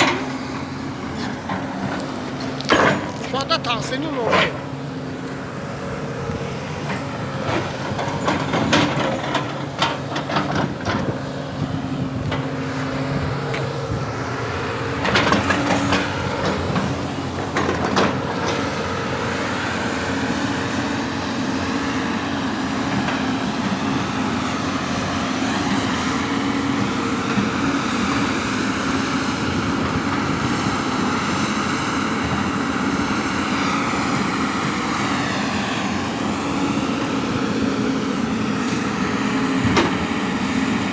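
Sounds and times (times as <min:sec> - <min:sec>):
diesel machinery engine drone: 0:00.0 - 0:40.9
metallic clanks and knocks: 0:02.6 - 0:03.2.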